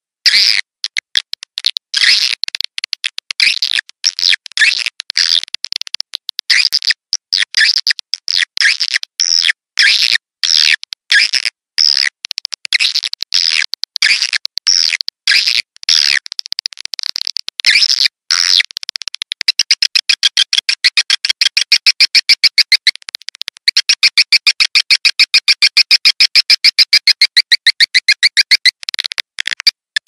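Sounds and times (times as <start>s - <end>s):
swiftlet lure call twittering: 25.7s - 28.8s.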